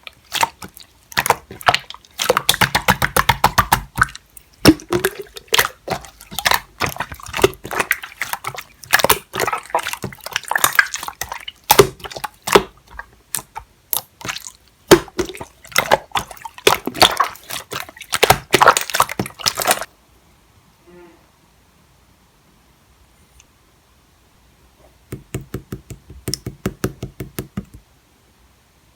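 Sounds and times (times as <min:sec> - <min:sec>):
slime squished by hand: 0:00.2 - 0:19.9.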